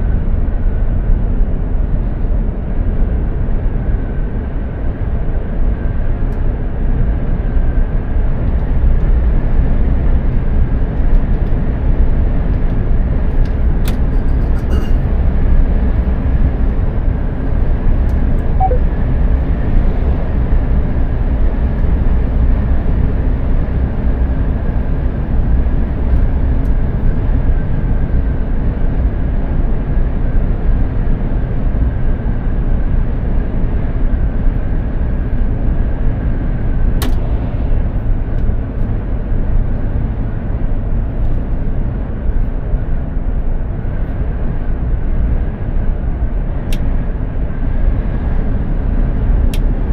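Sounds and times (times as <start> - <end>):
heavy truck driving: 8.2 - 28.6
faint whine: 13.9 - 20.2.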